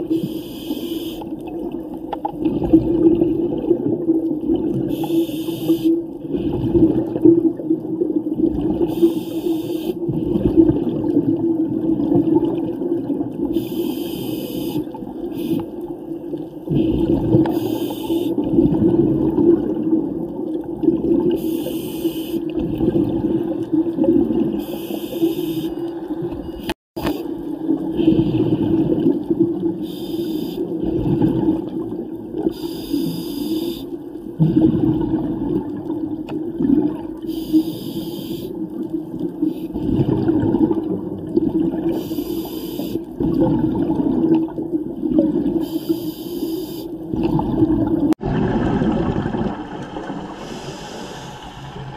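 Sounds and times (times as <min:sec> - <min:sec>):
low underwater rumble: 0:47.1 - 0:51.9
diver breathing through regulator: 0:50.3 - 0:51.9.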